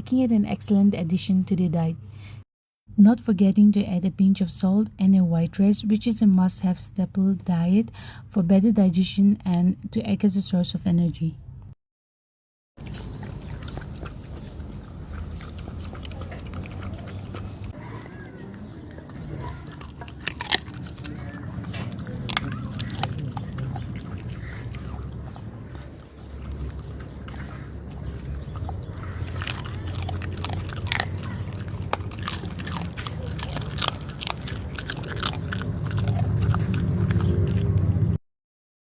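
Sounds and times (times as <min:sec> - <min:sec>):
dog chewing and crunching food: 0:12.8 - 0:38.2.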